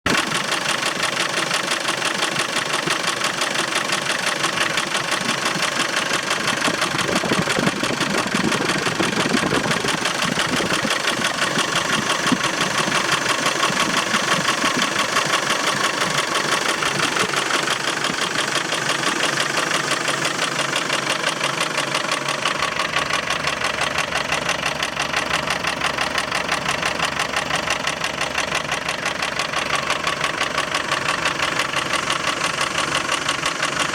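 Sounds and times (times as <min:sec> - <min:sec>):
diesel engine clattering: 0:00.0 - 0:33.9.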